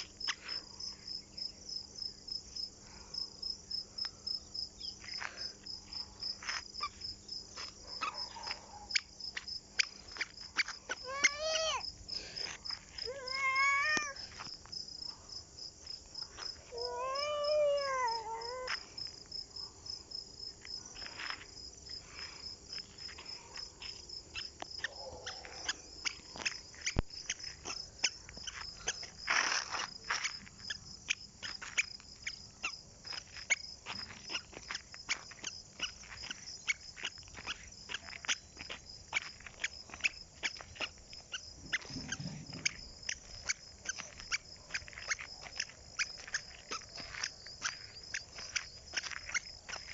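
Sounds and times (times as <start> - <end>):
insects trilling: 0.0 - 49.9
drawn-out pitched cry: 10.9 - 11.8, 13.0 - 14.3.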